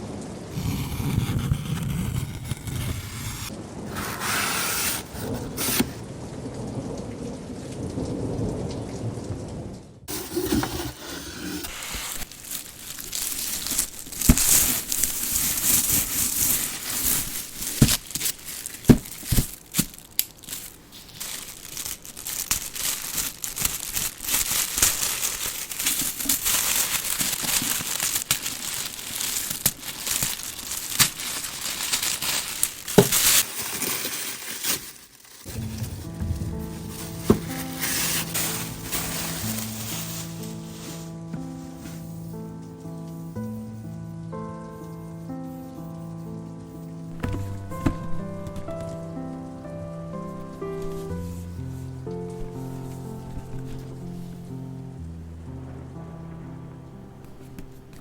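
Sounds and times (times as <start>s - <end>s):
plastic and cardboard crinkling: 0.5s - 6.0s, 10.1s - 42.7s, 46.6s - 55.0s
low rumbling: 35.5s - 40.8s.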